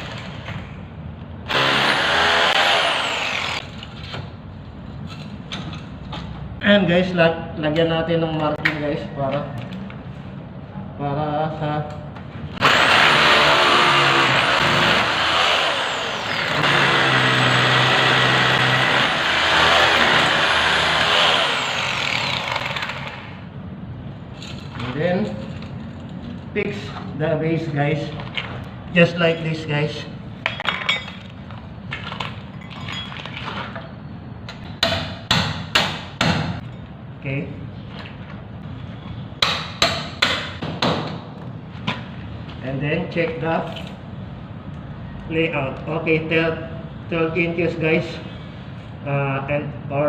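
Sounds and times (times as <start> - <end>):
power drill whining: 1.5 - 3.6, 12.6 - 23.3
loud engine running: 12.6 - 23.4.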